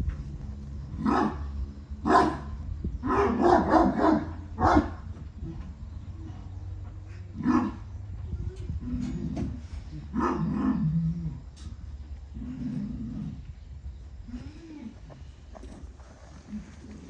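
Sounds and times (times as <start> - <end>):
dogs barking: 0.9 - 5.6, 7.2 - 7.9, 10.1 - 10.9.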